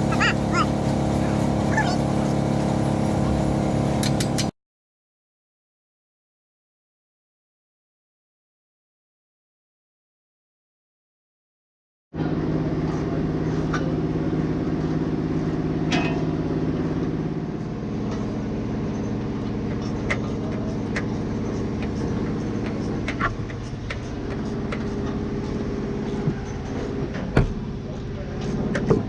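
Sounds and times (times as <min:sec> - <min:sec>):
vehicle engine running: 0:00.0 - 0:04.5, 0:12.2 - 0:29.0.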